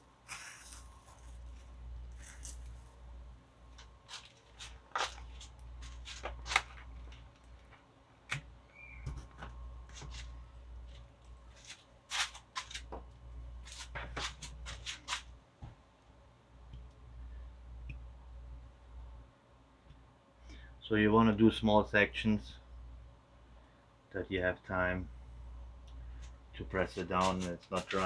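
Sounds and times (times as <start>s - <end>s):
low steady hum: 0.0s - 28.0s
scratchy rustles and taps: 0.2s - 3.0s, 3.7s - 15.8s, 27.0s - 28.0s.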